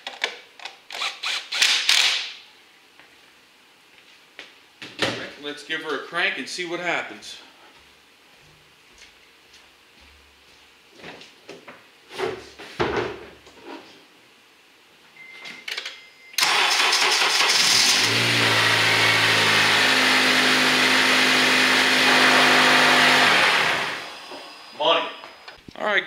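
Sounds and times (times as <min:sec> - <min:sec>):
car engine cranking and idling: 0:16.4 - 0:24.6.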